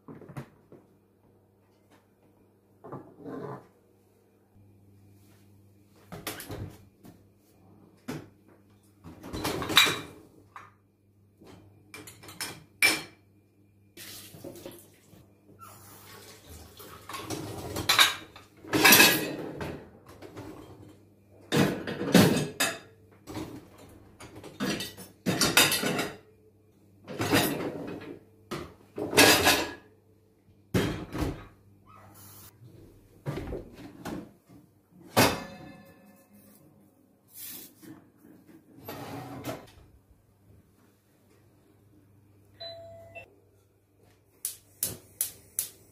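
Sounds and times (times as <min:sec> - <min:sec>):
dishes and cutlery clinking: 0:24.3 - 0:26.2, 0:35.2 - 0:36.6.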